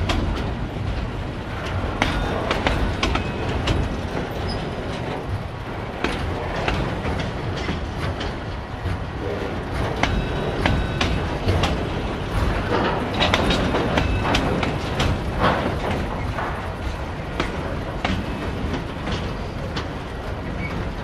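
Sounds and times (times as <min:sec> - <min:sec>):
wheels clicking over rail joints: 0:00.0 - 0:21.0
wheel squeals: 0:04.3 - 0:04.8, 0:20.4 - 0:21.0.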